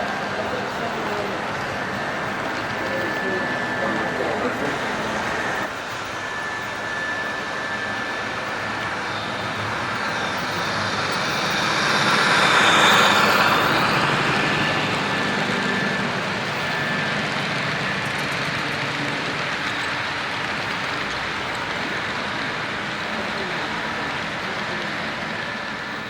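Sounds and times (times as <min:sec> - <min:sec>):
model train rolling whir: 0:00.0 - 0:26.0.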